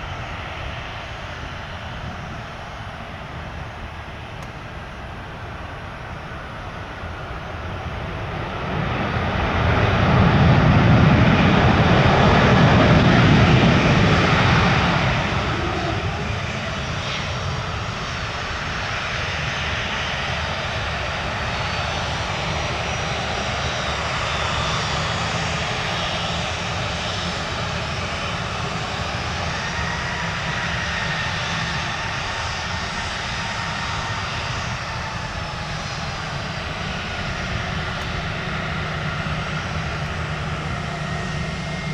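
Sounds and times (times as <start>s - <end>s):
airplane engines rumbling: 0.0s - 41.9s
faint engine whine: 0.0s - 41.9s.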